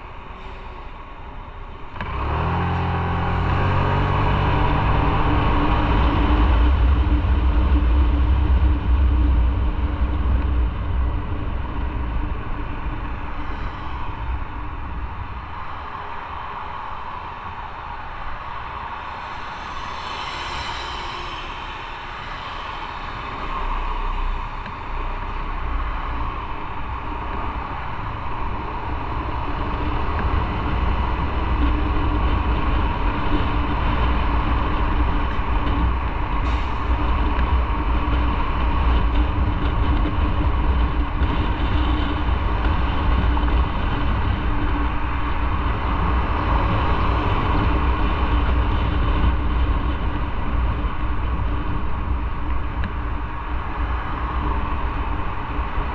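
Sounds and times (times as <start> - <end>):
wind rushing over microphone: 0.0 - 55.9
motorcycle engine and road noise: 1.4 - 55.9.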